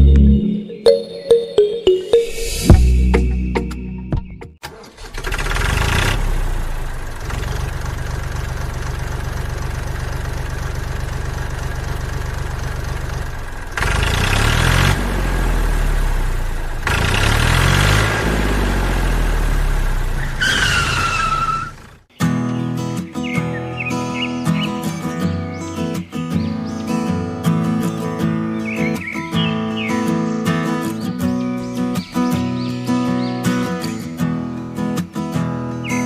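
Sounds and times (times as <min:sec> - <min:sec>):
tractor engine idling and revving: 0:04.6 - 0:22.1.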